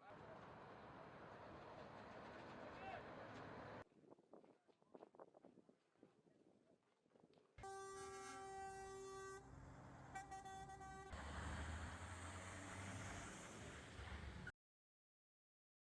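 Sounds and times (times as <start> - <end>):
truck horn blasts: 7.6 - 11.2
heavy vehicle engine rumbling: 8.5 - 14.5.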